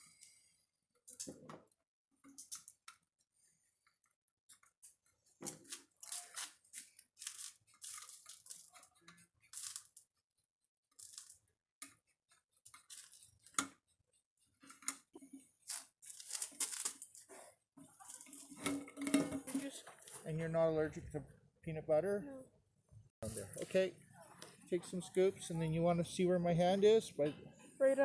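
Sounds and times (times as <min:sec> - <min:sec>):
craft materials scraping and rustling: 0:14.6 - 0:20.3.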